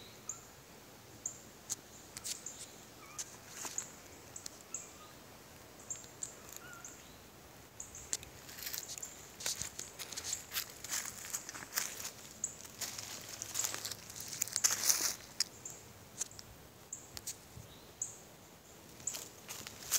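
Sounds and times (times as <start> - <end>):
small birds calling: 1.2 - 19.9
footsteps crunching dry leaves: 3.2 - 4.1, 8.1 - 15.6, 18.9 - 19.9.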